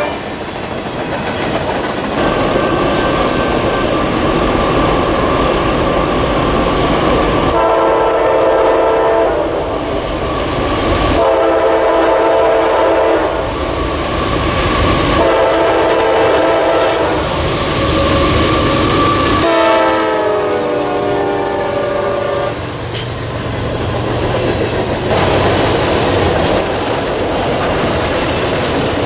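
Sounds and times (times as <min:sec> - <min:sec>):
locomotive horn blasts: 0:00.0 - 0:00.3, 0:07.5 - 0:09.5, 0:11.2 - 0:13.4, 0:15.2 - 0:17.2, 0:19.0 - 0:22.7
train running rumble: 0:00.0 - 0:29.0.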